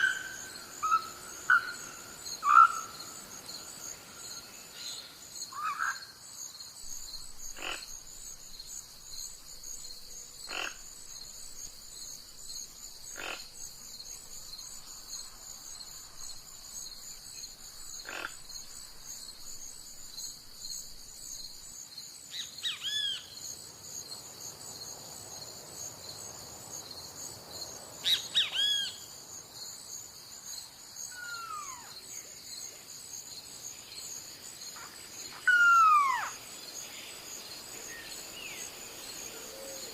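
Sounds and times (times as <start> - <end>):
bird calls: 0.0 - 3.1, 34.8 - 36.4
crickets chirping: 0.0 - 39.9.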